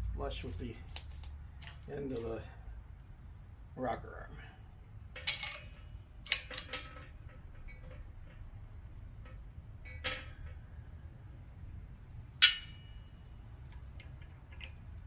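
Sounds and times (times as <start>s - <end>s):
sharp metal clinks: 12.4s - 13.2s.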